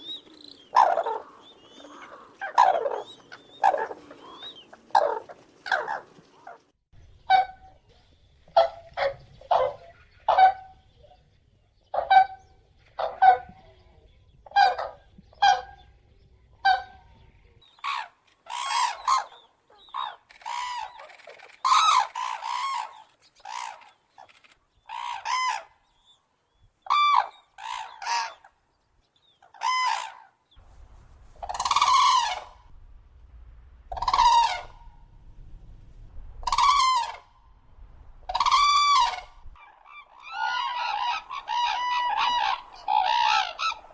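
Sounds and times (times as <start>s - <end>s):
cranes calling: 0.0s - 6.7s, 17.8s - 25.8s, 31.3s - 32.8s, 33.8s - 35.5s, 36.1s - 43.9s.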